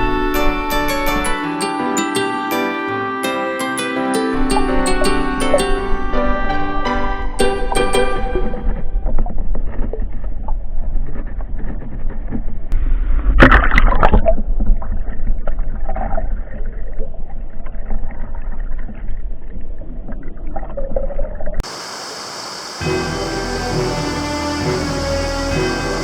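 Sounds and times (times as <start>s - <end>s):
water splashing: 4.4s - 12.4s
muffled underwater water rushing: 4.4s - 26.0s.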